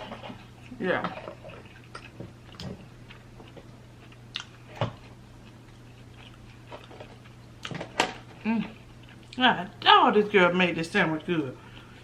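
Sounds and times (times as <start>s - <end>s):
person chewing: 1.3s - 9.4s.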